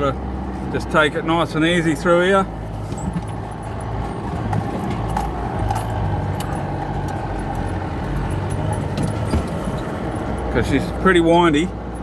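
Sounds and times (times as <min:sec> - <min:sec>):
road noise on dirt track: 0:00.0 - 0:12.0
vehicle engine at low revs: 0:00.0 - 0:12.0
jangling and rattling clicks: 0:02.7 - 0:11.1.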